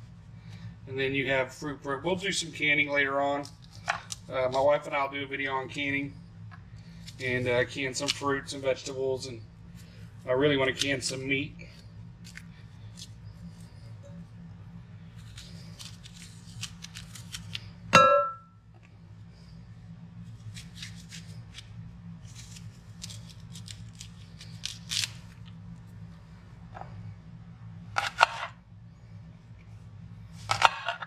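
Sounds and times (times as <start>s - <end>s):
knife slicing apples: 15.1s - 17.9s
loud ringing clink: 18.0s - 18.6s.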